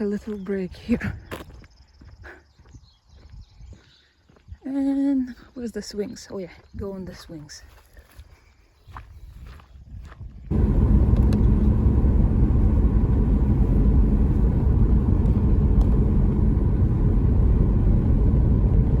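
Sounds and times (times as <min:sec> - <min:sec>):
car engine and road noise: 0:10.5 - 0:19.0.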